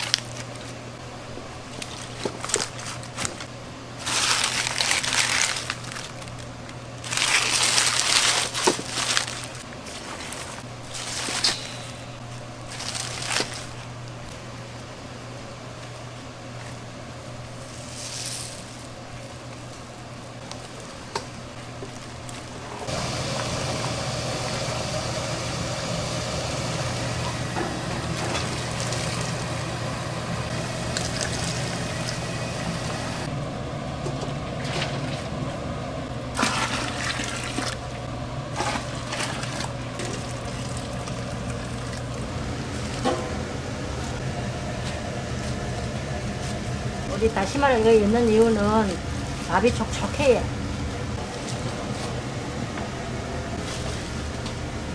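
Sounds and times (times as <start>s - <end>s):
steady low hum: 0.0s - 54.9s
water splashing into container: 36.3s - 37.8s.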